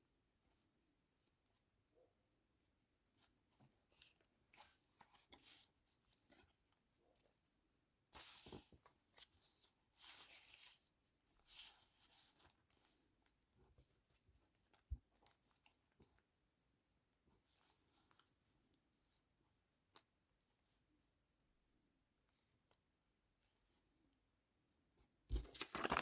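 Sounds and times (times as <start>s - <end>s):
paper rustling and tearing: 25.3s - 26.0s.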